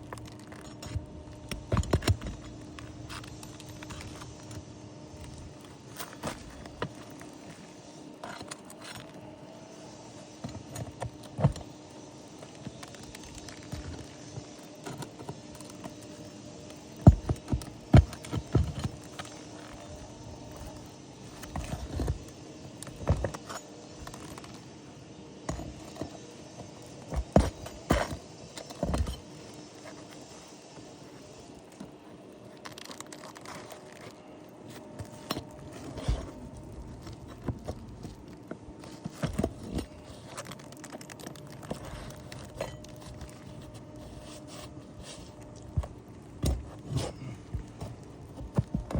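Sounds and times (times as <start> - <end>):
tools scraping shingles: 25.5 - 48.9.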